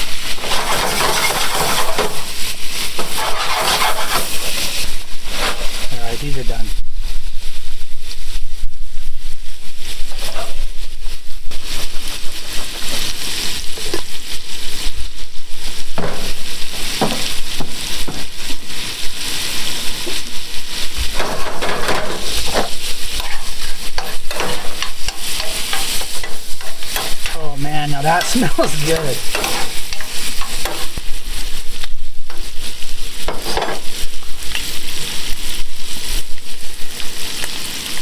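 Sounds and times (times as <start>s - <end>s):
seafood sizzling in a hot pan: 0.0s - 38.0s
utensil scraping and knocking pan: 0.2s - 5.9s, 10.1s - 10.7s, 15.9s - 18.4s, 21.0s - 31.6s, 32.3s - 32.6s, 33.2s - 34.0s.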